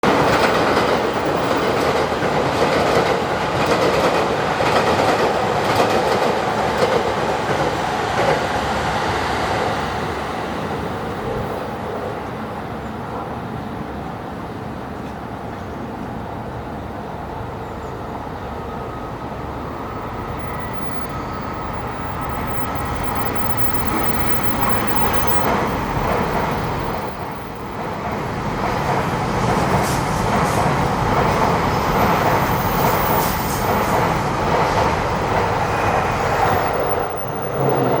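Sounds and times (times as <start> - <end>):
train rumbling on rails: 0.0 - 38.0
high clicks and squeals: 20.0 - 27.6.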